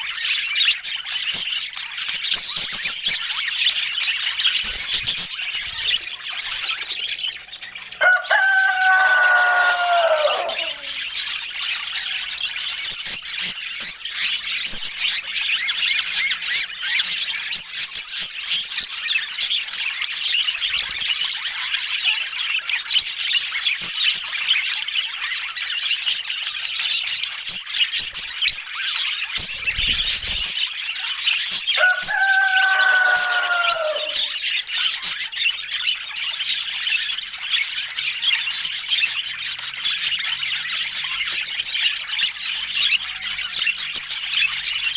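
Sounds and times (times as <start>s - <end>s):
budgerigars chattering and chirping: 0.0s - 44.9s
rooster crowing: 7.9s - 11.1s, 31.8s - 34.4s.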